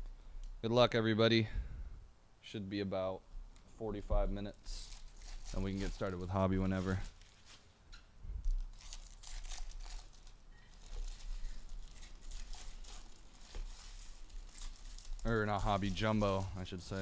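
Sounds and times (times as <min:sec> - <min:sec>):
card packaging crinkling and tearing: 0:04.6 - 0:07.7, 0:08.4 - 0:17.0.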